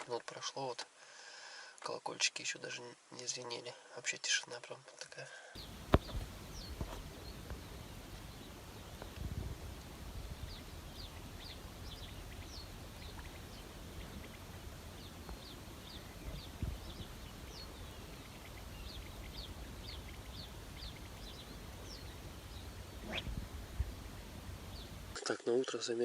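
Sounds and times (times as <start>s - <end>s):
low outdoor rumble: 5.6s - 25.2s
small birds chirping: 5.6s - 25.3s.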